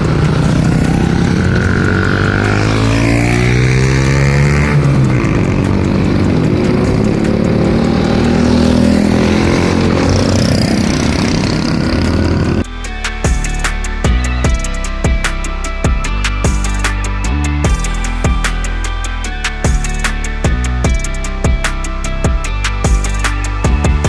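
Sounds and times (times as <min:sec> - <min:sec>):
motorcycle engine accelerating: 0:00.0 - 0:12.7.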